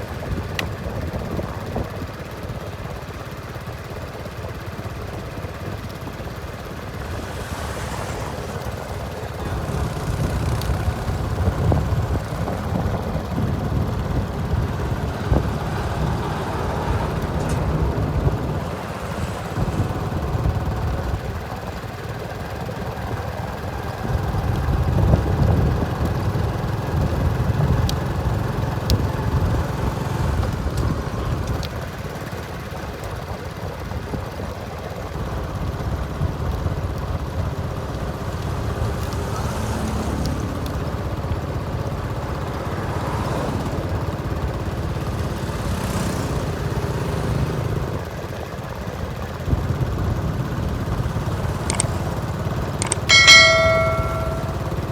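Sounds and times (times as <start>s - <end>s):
diesel engines rumbling: 3.7s - 34.2s, 34.9s - 54.9s.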